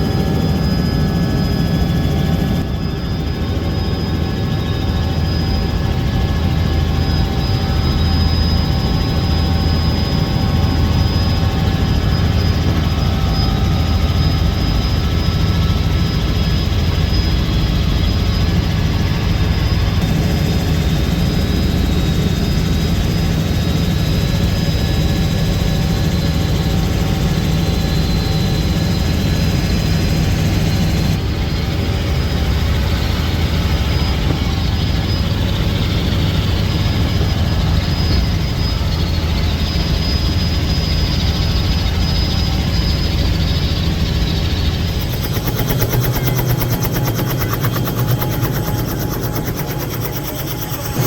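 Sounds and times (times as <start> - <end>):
helicopter rotor and engine drone: 0.0 - 51.0.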